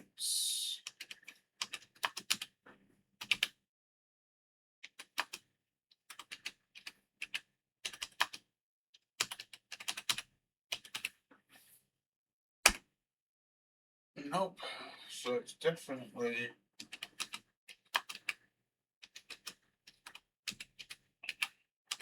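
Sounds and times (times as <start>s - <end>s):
computer keyboard typing: 0.8s - 2.5s, 3.2s - 3.5s, 4.8s - 5.5s, 6.1s - 8.4s, 9.2s - 11.2s, 16.8s - 18.4s, 19.0s - 22.0s.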